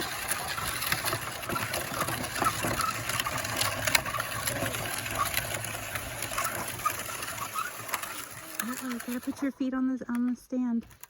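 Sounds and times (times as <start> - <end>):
bike clicks and rattles: 0.0 - 11.0.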